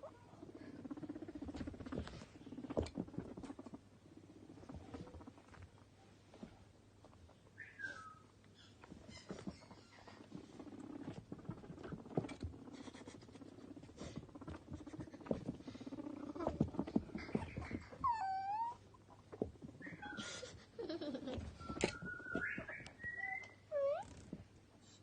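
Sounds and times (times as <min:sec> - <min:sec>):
guinea pigs squeaking: 0:00.0 - 0:05.9, 0:07.5 - 0:24.3
scuffling and small clicks: 0:08.4 - 0:24.6.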